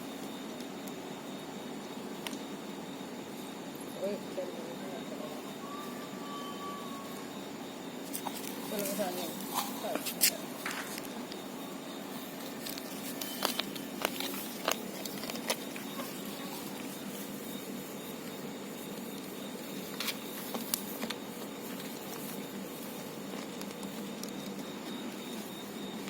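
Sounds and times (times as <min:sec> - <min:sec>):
steady low hum: 0:00.0 - 0:26.0
small clicks and taps: 0:23.3 - 0:25.0.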